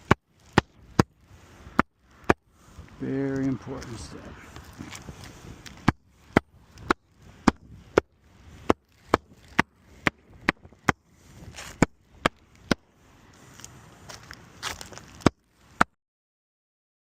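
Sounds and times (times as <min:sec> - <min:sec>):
faint scraping: 0:00.0 - 0:10.0.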